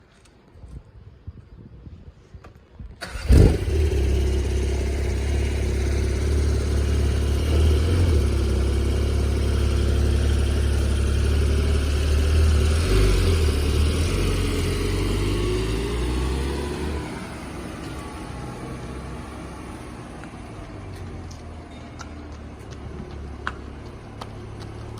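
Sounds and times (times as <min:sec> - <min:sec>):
car engine starting and idling: 0:03.0 - 0:21.4.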